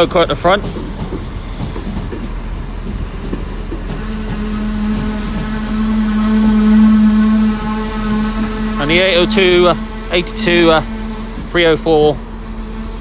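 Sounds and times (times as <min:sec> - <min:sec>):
locomotive engine hum: 0:00.0 - 0:13.0
low rumble of train: 0:00.0 - 0:13.0.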